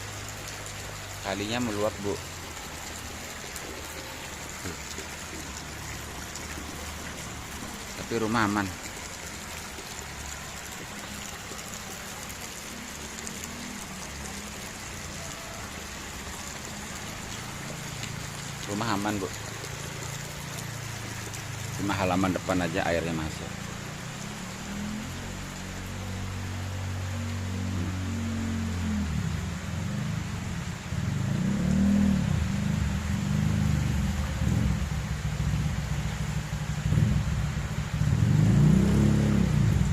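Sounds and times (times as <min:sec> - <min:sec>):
rain: 0:00.0 - 0:39.9
rushing floodwater: 0:00.0 - 0:39.9.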